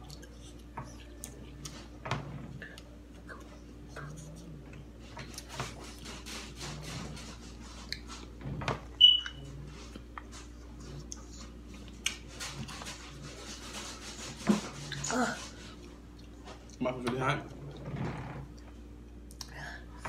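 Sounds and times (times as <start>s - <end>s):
steady low hum: 0.0s - 20.0s
high-pitched beep: 9.0s - 9.4s.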